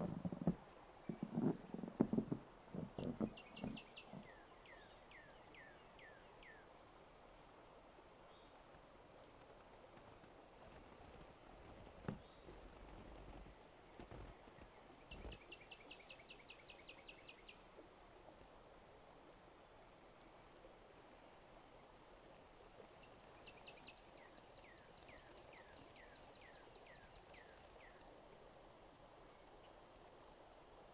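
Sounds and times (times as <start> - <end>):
soft thumps: 0.0 - 4.3.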